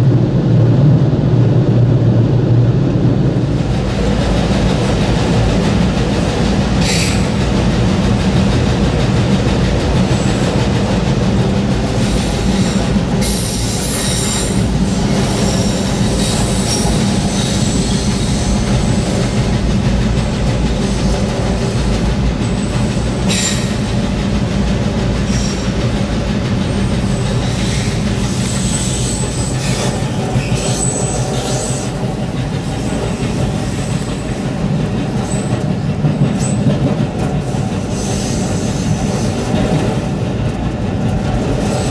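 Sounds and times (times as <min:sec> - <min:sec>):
train rumbling: 0:00.0 - 0:41.9
wheels squealing on rails: 0:06.2 - 0:08.5, 0:09.5 - 0:24.3, 0:25.0 - 0:40.6, 0:41.4 - 0:41.9.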